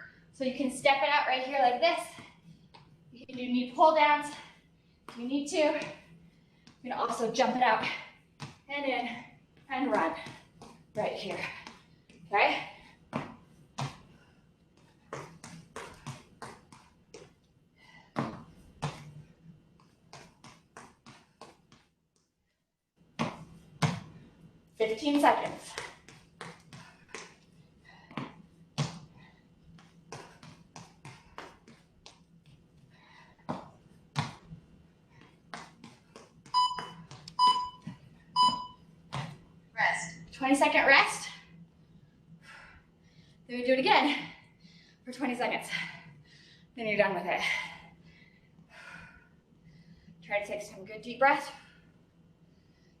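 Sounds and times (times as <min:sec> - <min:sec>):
short electronic beeps: 0:36.6 - 0:38.8.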